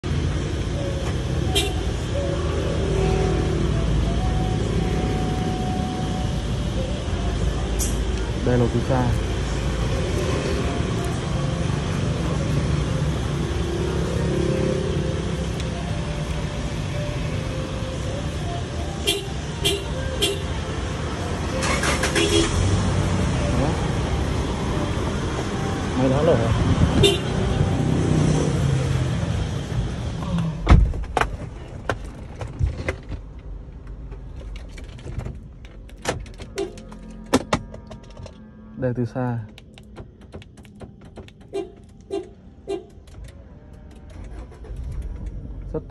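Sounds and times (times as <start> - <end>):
car engine idling: 0.0 - 27.7, 28.7 - 45.9
sharp clicks and knocks: 39.4 - 45.4.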